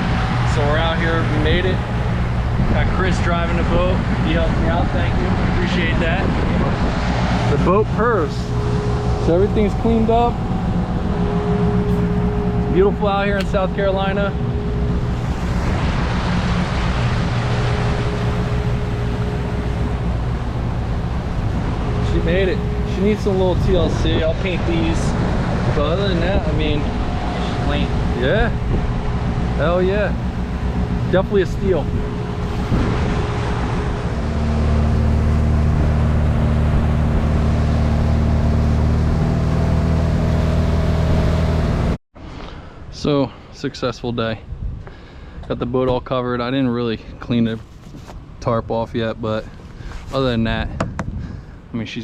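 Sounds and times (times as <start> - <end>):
rush of wind and water: 0.0 - 39.2
boat engine humming: 0.0 - 42.0.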